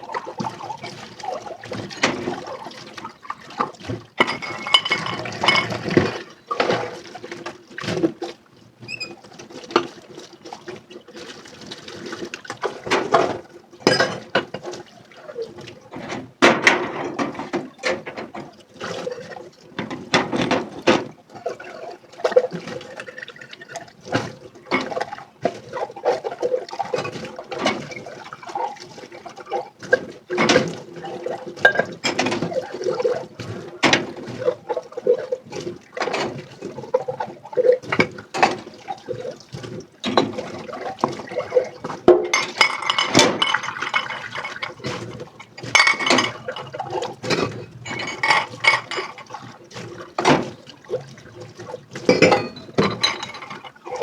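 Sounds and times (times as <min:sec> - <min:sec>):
water splashing in a sink: 0:00.0 - 0:54.0
plates and utensils clinking: 0:04.2 - 0:06.3, 0:42.1 - 0:46.8, 0:47.4 - 0:49.3, 0:52.1 - 0:54.0.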